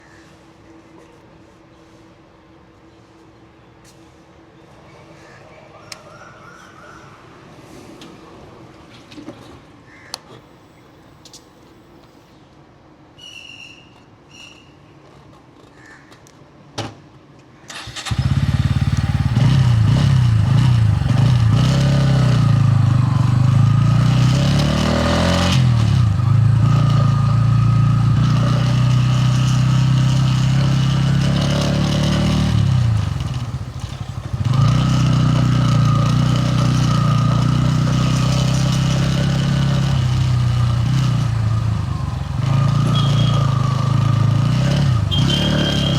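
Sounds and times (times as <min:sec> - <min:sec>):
motorcycle engine starting and revving: 0:17.7 - 0:45.9.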